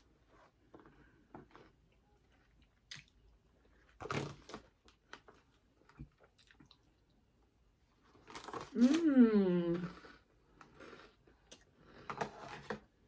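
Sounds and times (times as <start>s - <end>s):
chewing with crunches: 5.1s - 7.2s.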